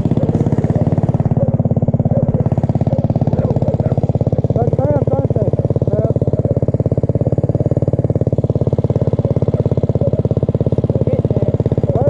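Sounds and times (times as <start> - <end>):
small engine putter: 0.0 - 12.0.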